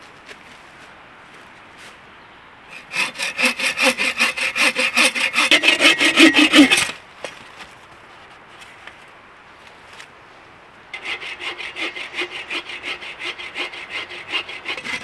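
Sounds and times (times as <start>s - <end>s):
hand saw cutting a log: 2.7s - 7.0s, 11.0s - 15.0s.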